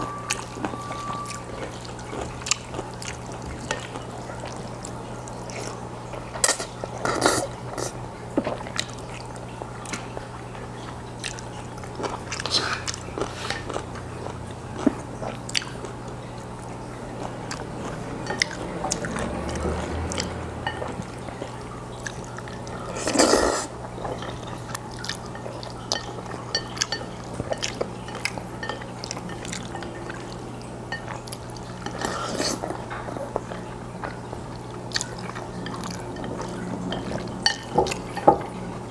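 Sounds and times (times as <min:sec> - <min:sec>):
low electrical hum: 0:00.0 - 0:38.9
man chewing noodles: 0:00.0 - 0:38.9
noodle slurps: 0:06.5 - 0:08.0, 0:22.9 - 0:24.4, 0:31.9 - 0:32.8.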